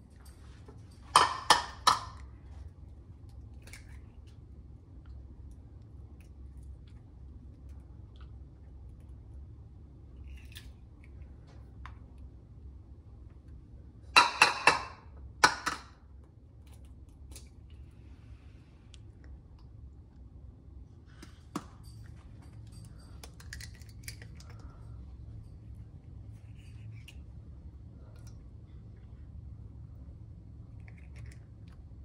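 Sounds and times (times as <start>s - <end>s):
eggshells tapped on bowl rim: 1.1s - 2.2s, 14.2s - 15.9s.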